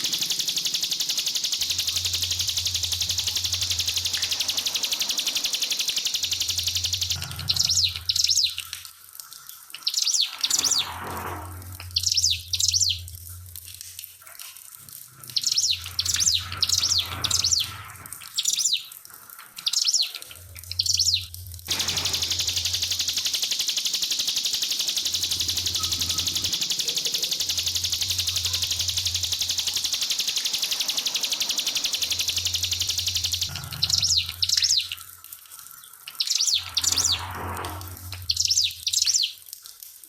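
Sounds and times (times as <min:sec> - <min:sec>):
bird singing in rapid bursts: 0:00.0 - 0:08.7, 0:09.8 - 0:11.0, 0:11.8 - 0:13.1, 0:15.3 - 0:19.0, 0:19.6 - 0:35.0, 0:36.1 - 0:37.4, 0:38.0 - 0:39.4
water trickling: 0:00.0 - 0:40.0.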